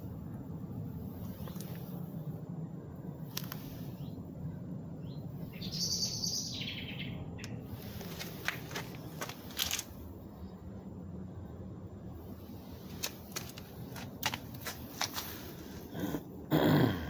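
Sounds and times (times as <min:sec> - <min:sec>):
low outdoor rumble: 0:00.0 - 0:17.0
bird calling: 0:05.0 - 0:09.8.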